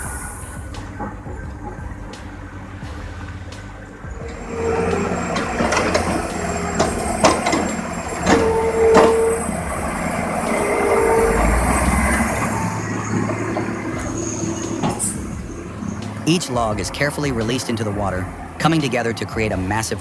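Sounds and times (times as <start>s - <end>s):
truck engine rumble: 0.0s - 20.0s
short squeals: 4.0s - 19.2s.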